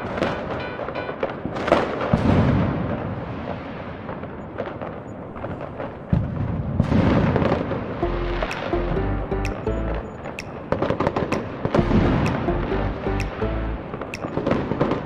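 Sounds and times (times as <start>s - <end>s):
fireworks booming: 0.0s - 8.7s
music: 8.0s - 14.4s.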